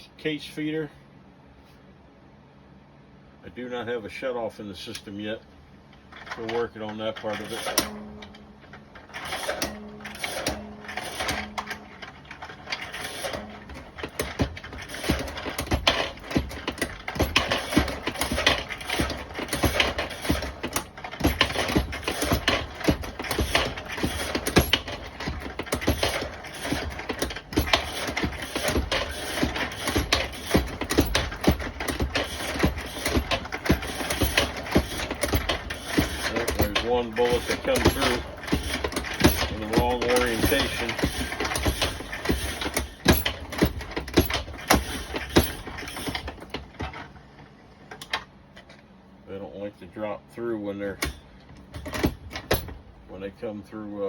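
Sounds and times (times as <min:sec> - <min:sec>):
press knocking: 0:07.2 - 0:47.0.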